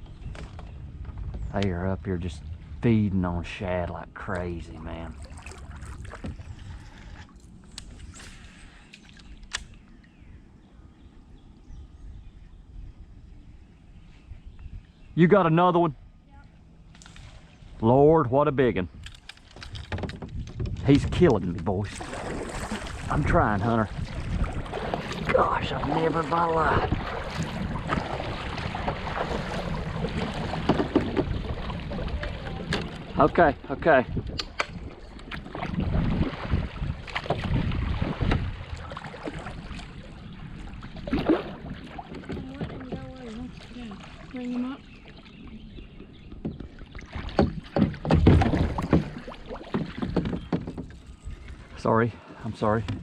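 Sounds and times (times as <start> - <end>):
wind buffeting microphone: 0.0 - 8.4, 9.7 - 15.4, 17.5 - 53.0
water moving around kayak: 0.0 - 53.0
fish thrashing water splashing: 21.9 - 33.2, 34.8 - 44.7, 46.9 - 50.6
short knocks: 46.3 - 51.0.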